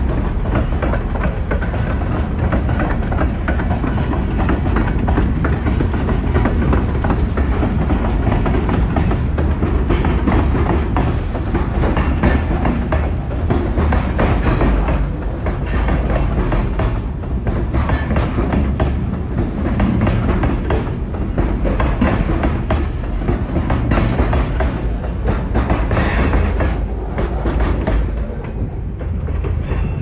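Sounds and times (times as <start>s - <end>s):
steel wheels rumbling on rails: 0.0s - 30.0s
wheels clacking over rail joints: 0.0s - 30.0s.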